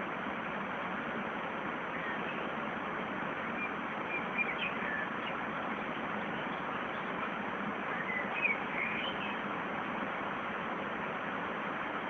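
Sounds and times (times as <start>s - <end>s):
small bird chirping: 3.5s - 7.1s, 7.9s - 9.4s.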